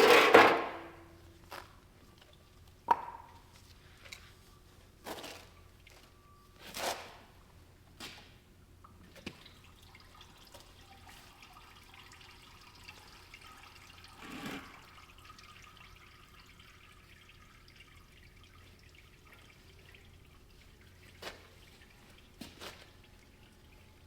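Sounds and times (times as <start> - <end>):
oil dripping into a pan: 8.8 - 14.2, 14.8 - 23.9.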